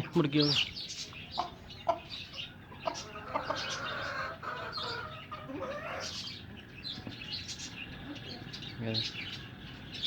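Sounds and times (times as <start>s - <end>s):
small birds chirping: 0.0s - 10.0s
hens clucking: 1.3s - 7.2s.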